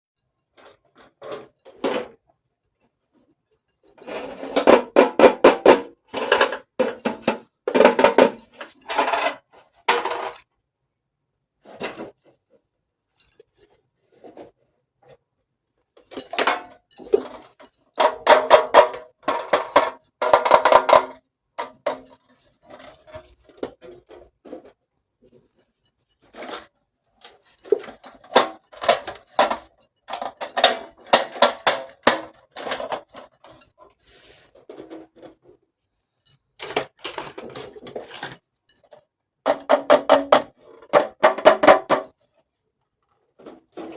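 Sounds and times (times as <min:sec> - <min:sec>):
toy dishes clinking and rattling: 0:04.2 - 0:10.4, 0:16.1 - 0:24.2, 0:27.3 - 0:35.2, 0:36.6 - 0:40.4, 0:41.0 - 0:42.2.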